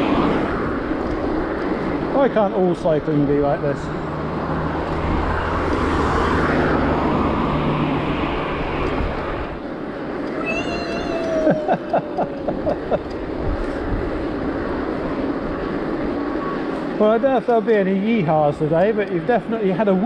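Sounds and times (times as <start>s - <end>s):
bike tyre and road noise: 0.0s - 20.0s
wind buffeting microphone: 0.0s - 20.0s
falling squeal: 10.4s - 11.5s.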